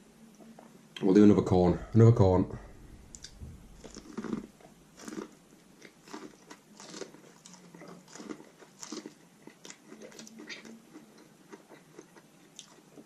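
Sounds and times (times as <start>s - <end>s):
wet chewing: 3.1s - 13.0s
crunchy bites of corn: 3.2s - 13.0s.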